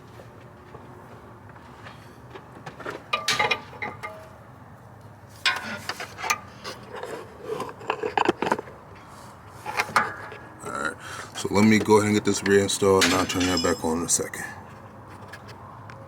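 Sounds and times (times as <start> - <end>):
hand tools clinking and scraping: 1.9 - 4.4, 5.3 - 14.5.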